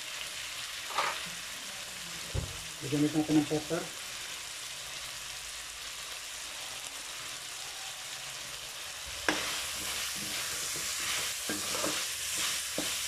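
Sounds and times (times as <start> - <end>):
meat sizzling in oil: 0.0 - 13.0
ladle scraping wok: 9.2 - 13.0.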